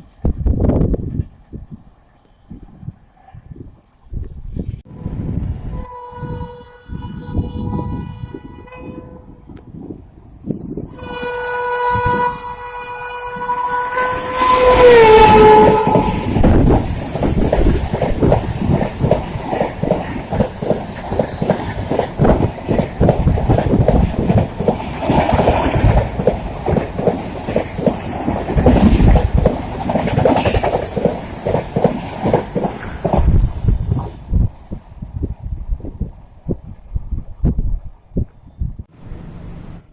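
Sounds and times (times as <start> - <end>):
train horn: 4.9 - 9.5, 10.9 - 16.5
train wheels clattering over rail joints: 15.8 - 33.3.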